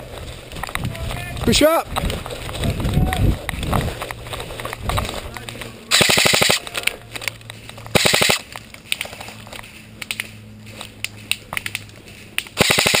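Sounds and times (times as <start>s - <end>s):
airsoft rifle full-auto burst: 5.9s - 6.6s, 8.0s - 8.4s, 12.6s - 13.0s.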